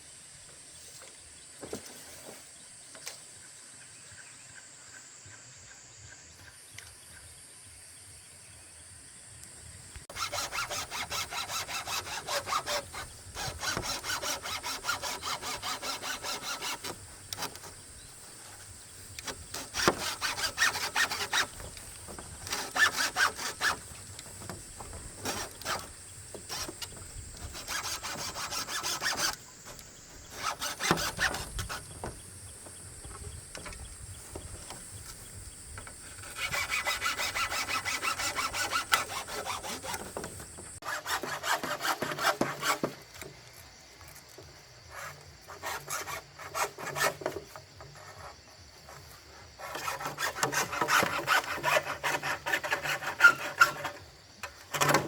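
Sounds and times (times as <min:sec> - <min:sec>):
handsaw cutting bamboo: 0:10.1 - 0:43.0, 0:44.9 - 0:55.0.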